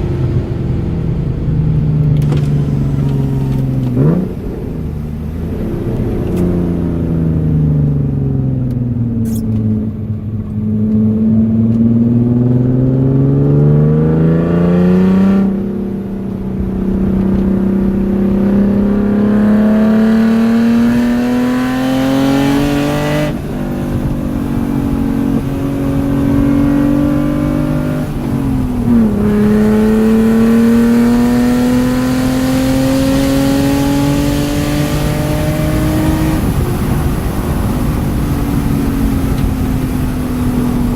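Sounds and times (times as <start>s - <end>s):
car engine accelerating: 0.0s - 40.9s
gear changes: 0.0s - 40.9s.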